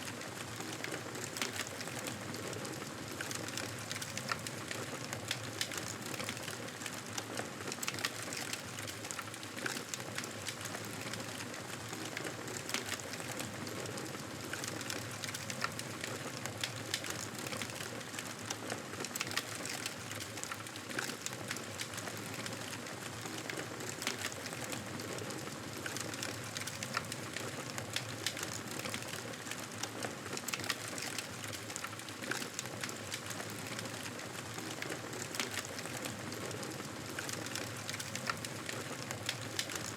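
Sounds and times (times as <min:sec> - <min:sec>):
wood fire crackling and popping: 0:00.1 - 0:39.9.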